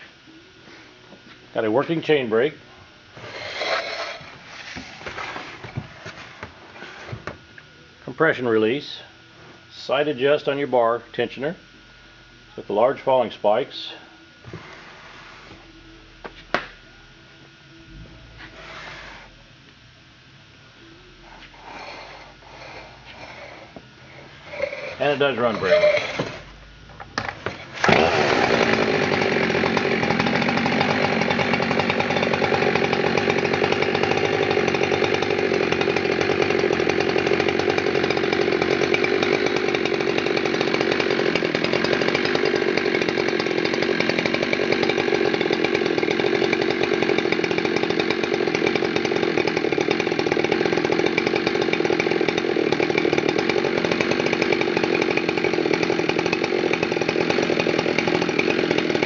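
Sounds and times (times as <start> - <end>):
chainsaw running steadily: 0.0 - 6.2, 21.4 - 59.0.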